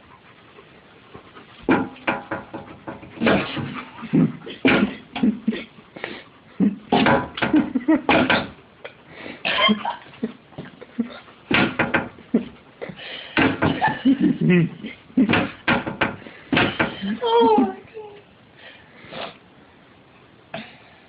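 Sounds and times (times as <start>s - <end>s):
goat butting a mirror: 1.7s - 3.8s, 11.5s - 12.5s, 13.4s - 14.0s.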